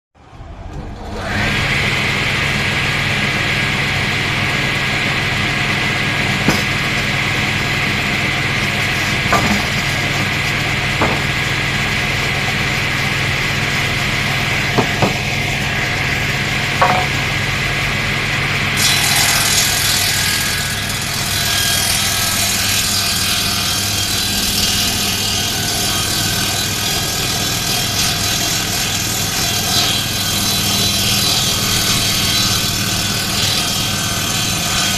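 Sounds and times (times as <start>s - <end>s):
woodworking machine cutting timber: 0.5s - 34.9s
sharp knocks: 6.4s - 6.9s, 9.3s - 9.8s, 11.0s - 11.4s, 14.8s - 15.2s, 16.8s - 17.2s.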